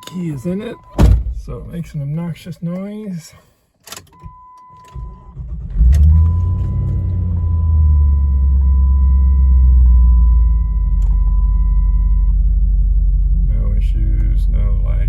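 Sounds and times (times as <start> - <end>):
ignition warning chime: 0.0 - 1.1, 4.2 - 5.4, 6.0 - 12.3
car engine starting and idling: 3.9 - 15.0.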